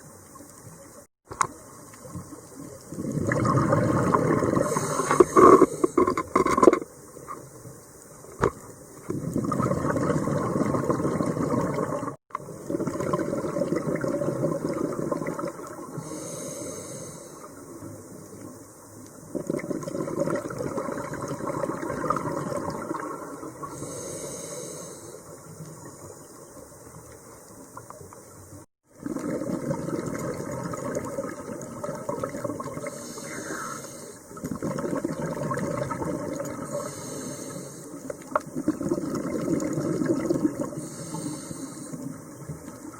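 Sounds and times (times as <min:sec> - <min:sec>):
exhaled bubbles rushing: 0:02.8 - 0:06.1, 0:09.1 - 0:16.0, 0:19.3 - 0:23.8, 0:28.9 - 0:32.9, 0:34.4 - 0:36.9, 0:38.4 - 0:40.8
regulator inhale hiss: 0:04.6 - 0:06.2, 0:15.9 - 0:18.0, 0:23.6 - 0:25.6, 0:32.8 - 0:34.4, 0:36.6 - 0:38.3, 0:40.7 - 0:42.4.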